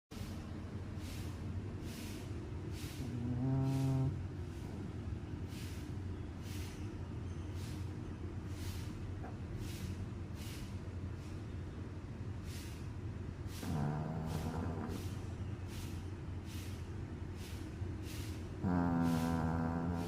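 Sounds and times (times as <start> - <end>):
steady low hum: 0.1 - 20.0
dog snoring: 1.2 - 5.8, 13.4 - 16.0, 18.2 - 20.0.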